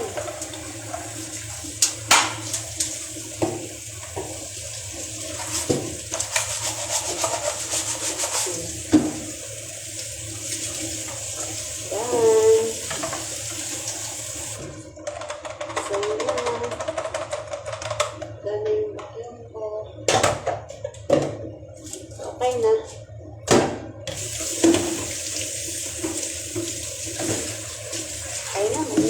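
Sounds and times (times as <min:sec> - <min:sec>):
water running from a tap: 0:00.0 - 0:14.9, 0:24.1 - 0:29.0.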